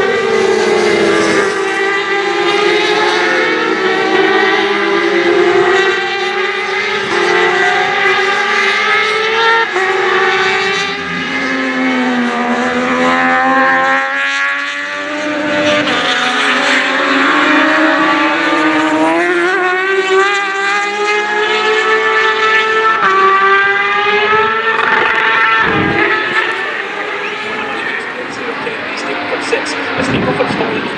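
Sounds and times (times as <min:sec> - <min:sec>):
racing motorcycle engines revving: 0:00.0 - 0:14.1, 0:24.6 - 0:30.9.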